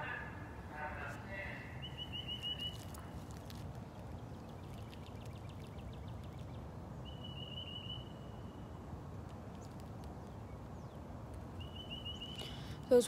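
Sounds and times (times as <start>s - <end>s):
low background rumble: 0.0s - 13.0s
high bird trill: 1.6s - 8.8s, 9.4s - 13.0s
songbird short chips: 1.8s - 6.5s.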